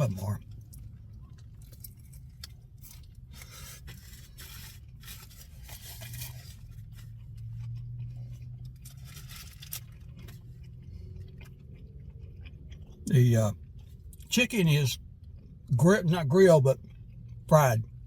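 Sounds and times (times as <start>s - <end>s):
person chewing crunchy food: 0.0s - 14.3s, 15.0s - 18.0s.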